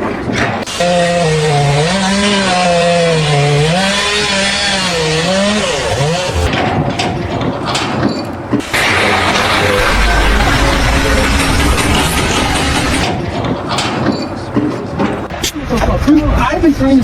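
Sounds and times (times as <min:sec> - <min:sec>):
motor running under load: 0:00.6 - 0:06.6, 0:08.6 - 0:13.6
rough scraping and clatter: 0:01.6 - 0:15.4
loud hiss: 0:08.6 - 0:13.0.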